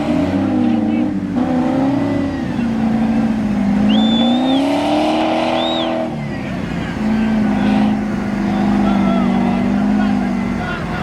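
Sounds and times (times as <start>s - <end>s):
vehicle engine revving: 0.0s - 11.0s
high whistling tones: 3.8s - 6.1s.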